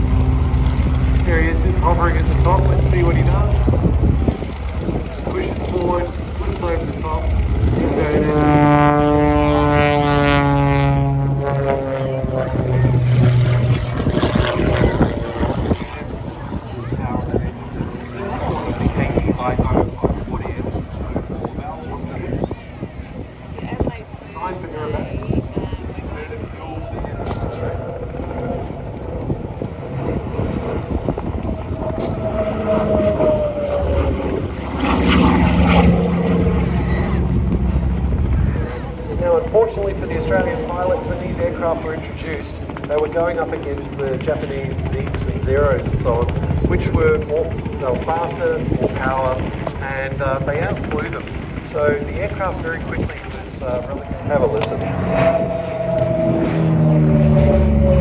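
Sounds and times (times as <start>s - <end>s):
propeller aircraft engine drone: 0.0s - 58.0s.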